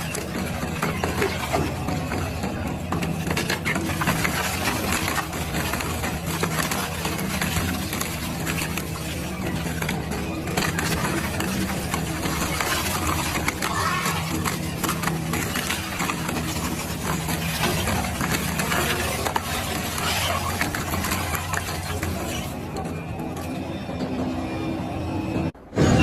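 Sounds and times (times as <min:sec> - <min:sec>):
material crackling and clattering: 0:00.0 - 0:23.6.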